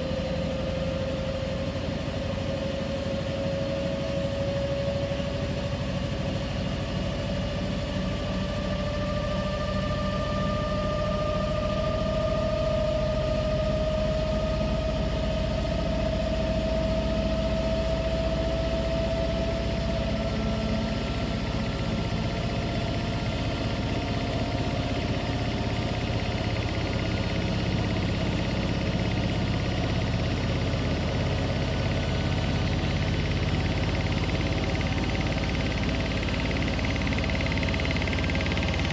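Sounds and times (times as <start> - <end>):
washing machine running: 19.4 - 38.9.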